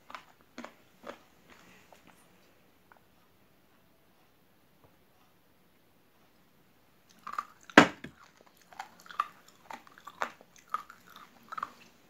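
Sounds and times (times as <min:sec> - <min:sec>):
crunchy rice chewing: 0:00.0 - 0:02.2, 0:07.1 - 0:12.0.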